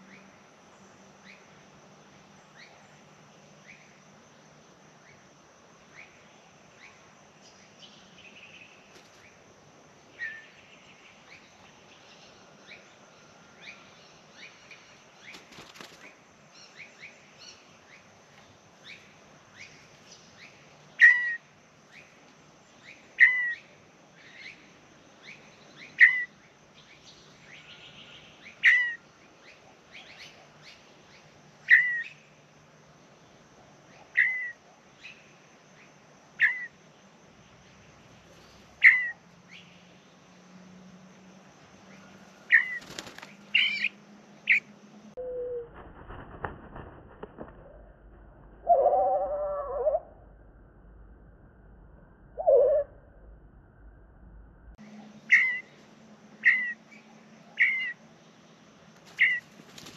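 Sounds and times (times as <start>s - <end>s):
bird chirping: 33.9s - 36.8s, 37.5s - 40.3s, 41.8s - 45.5s, 54.8s - 59.9s.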